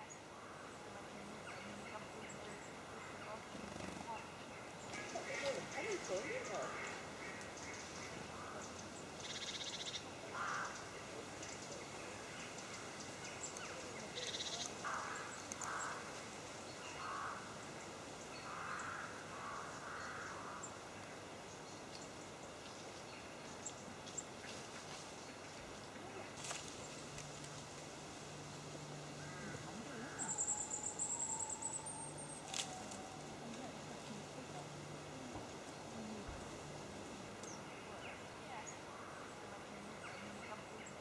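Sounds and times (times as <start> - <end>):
faint woodland background: 0.0 - 41.0
jay rasping calls: 5.1 - 10.9, 29.2 - 34.5.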